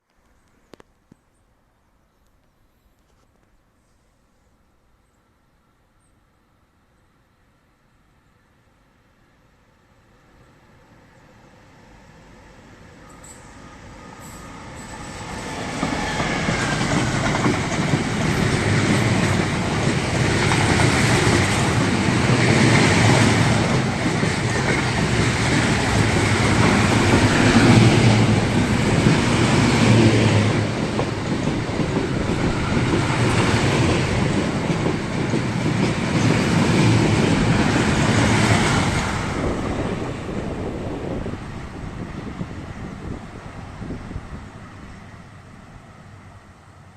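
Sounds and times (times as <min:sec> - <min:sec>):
train wheels clattering: 0:14.2 - 0:39.0.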